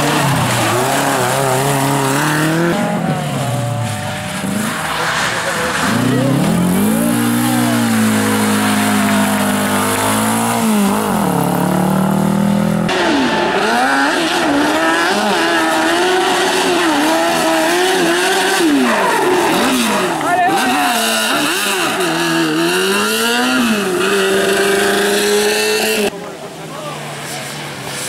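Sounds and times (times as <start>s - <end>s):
rally car engine at high revs: 0.0s - 26.2s
car revving through gear changes: 5.8s - 26.1s.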